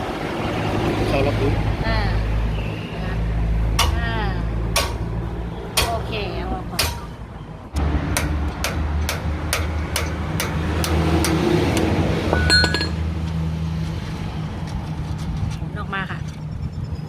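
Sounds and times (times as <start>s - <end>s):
metal parts clinking: 12.3s - 13.0s.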